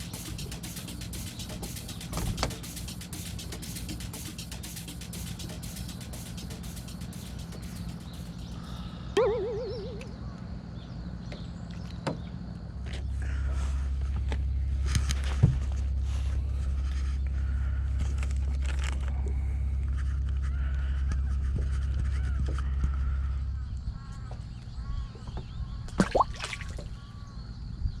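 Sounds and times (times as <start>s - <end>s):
scattered clicks: 0.0s - 8.7s
warbling call: 0.0s - 10.4s
low motor hum: 0.0s - 28.0s.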